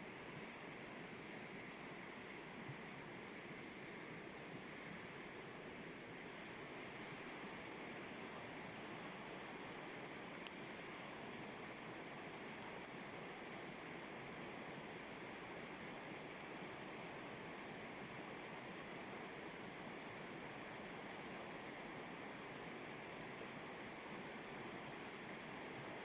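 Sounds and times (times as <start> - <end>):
faint click: 10.4 - 10.6.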